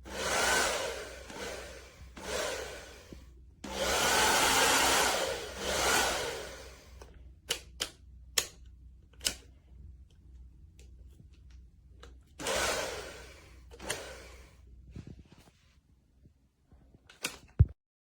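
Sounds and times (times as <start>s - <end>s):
hair dryer blowing: 0.0s - 7.0s, 12.4s - 14.7s
clicks and knocks of handling: 17.0s - 17.8s.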